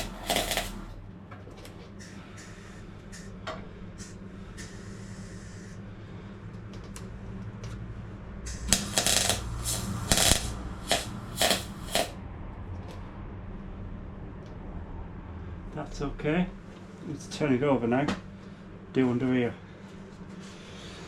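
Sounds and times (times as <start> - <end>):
tack-weld bursts: 0.0 - 1.0, 8.5 - 12.2
steady low hum: 0.0 - 21.0.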